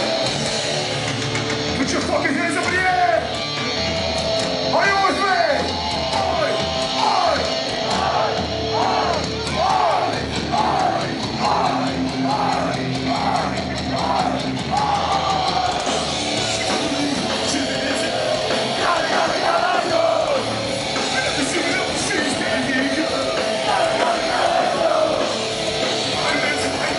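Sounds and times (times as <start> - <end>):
distorted rock music: 0.0 - 26.9
drums: 0.0 - 26.9
shouted vocals: 4.8 - 25.4, 26.0 - 26.9.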